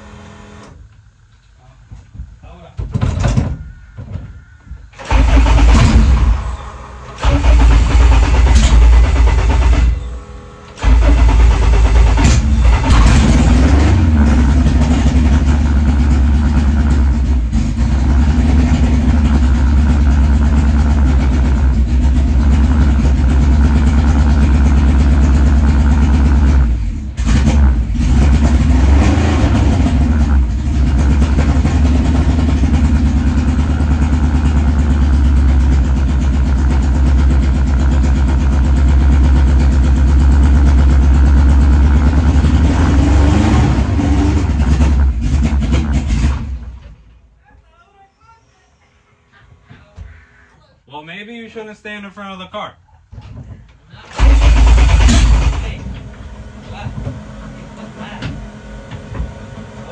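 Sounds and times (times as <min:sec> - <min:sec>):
car engine starting and running: 0:00.0 - 0:01.3, 0:02.8 - 0:47.3, 0:53.9 - 0:59.9
engine revving: 0:04.9 - 0:47.0, 0:54.1 - 0:59.9.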